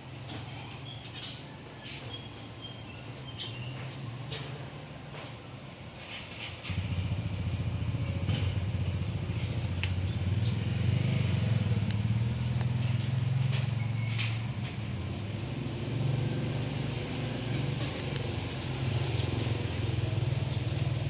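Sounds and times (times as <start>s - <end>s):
birds chirping: 0.4s - 6.5s.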